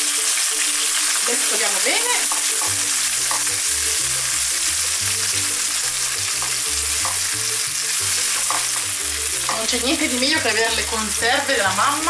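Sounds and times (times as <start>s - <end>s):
soft music with bass line: 0.0s - 12.0s
tomatoes sizzling in a frying pan: 0.0s - 12.0s
spatula tapping a pan: 2.2s - 3.6s, 6.3s - 7.4s, 8.2s - 9.7s.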